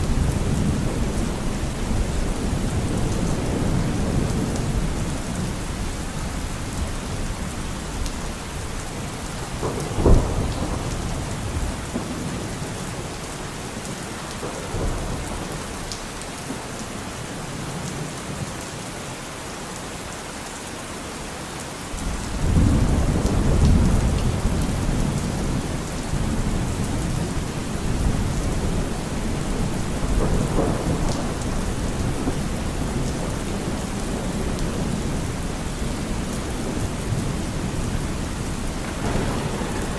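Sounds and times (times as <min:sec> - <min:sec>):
low thunder rumble: 0:00.0 - 0:13.1, 0:22.1 - 0:39.9
steady rain falling: 0:00.0 - 0:39.9
thunder clap: 0:09.4 - 0:12.7, 0:37.0 - 0:39.9.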